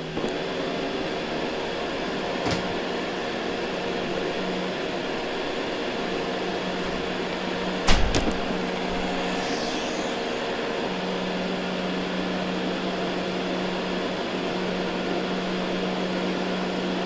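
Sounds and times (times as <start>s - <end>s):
robot vacuum humming: 8.5s - 16.2s.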